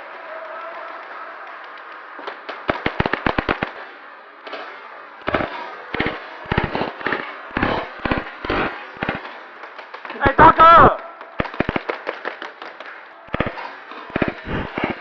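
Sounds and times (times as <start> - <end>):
airsoft guns firing: 0.6 - 15.0.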